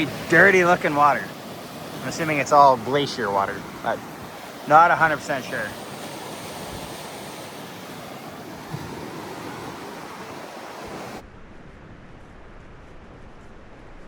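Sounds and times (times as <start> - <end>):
fast-flowing meltwater rushing: 0.0 - 11.2
wind on the microphone: 0.0 - 14.0.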